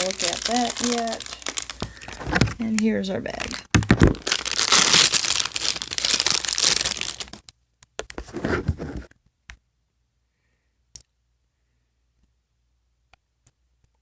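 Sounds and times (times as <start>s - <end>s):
plastic bag crinkling and tearing: 0.0s - 7.5s.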